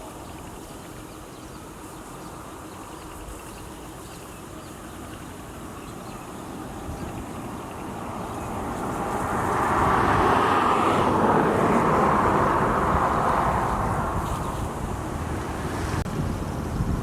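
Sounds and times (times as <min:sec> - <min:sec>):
rural outdoor ambience: 0:00.0 - 0:17.0
distant vehicle rumble: 0:06.3 - 0:17.0.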